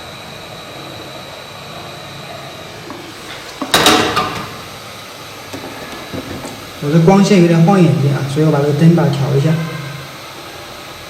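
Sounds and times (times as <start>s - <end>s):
hot-air gun blowing hiss: 2.9s - 11.0s.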